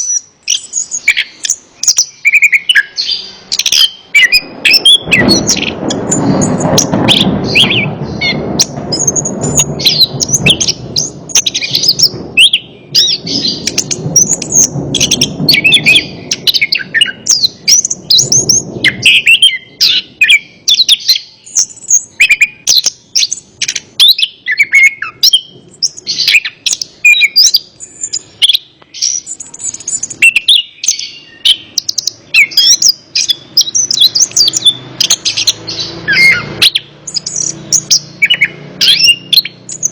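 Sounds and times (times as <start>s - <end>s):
thrush singing: 0.0s - 39.9s
low rushing noise: 3.1s - 20.7s.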